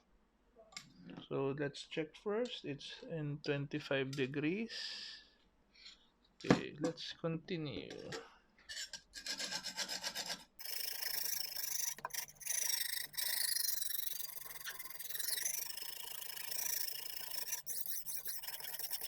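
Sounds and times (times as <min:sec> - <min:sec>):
sharpening stone rasping on knife: 0:08.7 - 0:19.0.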